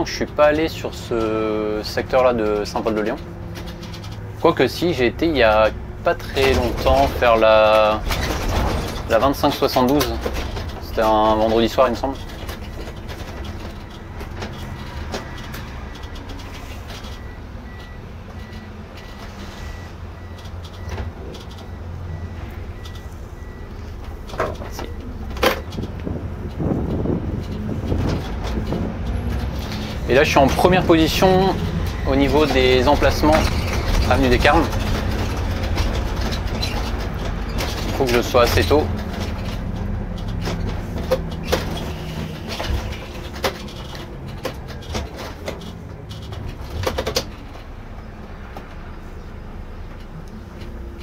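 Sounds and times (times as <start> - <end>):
diesel engine rumbling: 0.0 - 51.0
sharp clicks and knocks: 0.1 - 4.4, 5.2 - 19.3, 20.2 - 22.2, 22.8 - 48.9.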